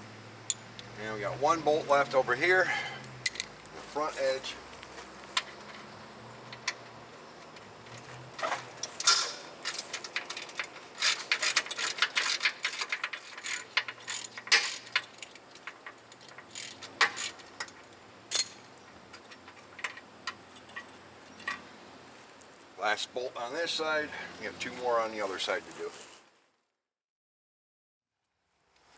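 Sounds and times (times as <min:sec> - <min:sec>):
hand ratchet clicking: 0:08.9 - 0:20.9.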